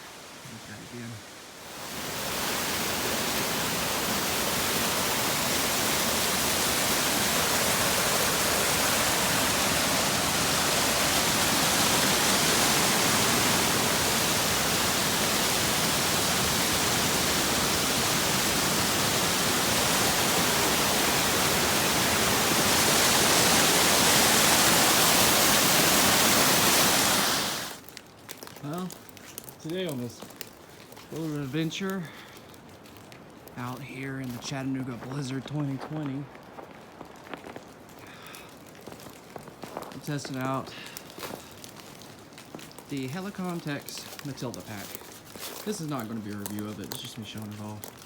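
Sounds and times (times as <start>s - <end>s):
rushing water: 0.0s - 27.8s.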